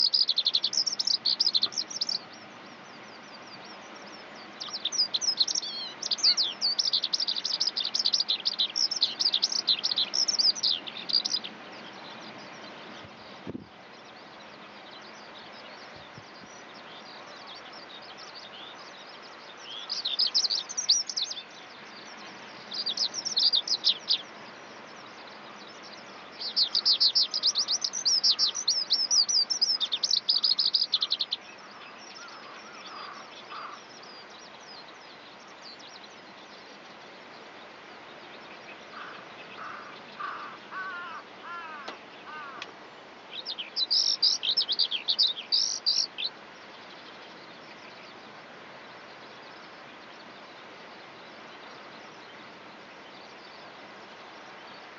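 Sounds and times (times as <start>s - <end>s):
skylark twittering trills: 0.0s - 12.7s, 13.8s - 36.6s, 43.4s - 50.6s
background hiss: 0.0s - 54.9s.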